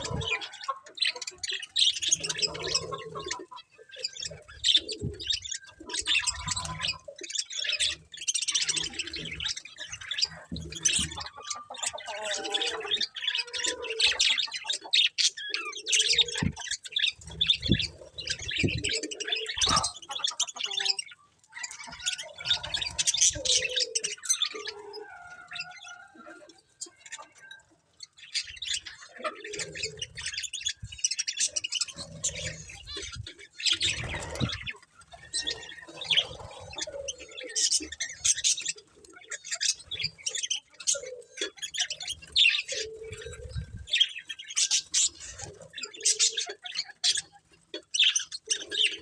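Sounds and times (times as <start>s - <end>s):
budgerigars chirping: 0.0s - 49.0s.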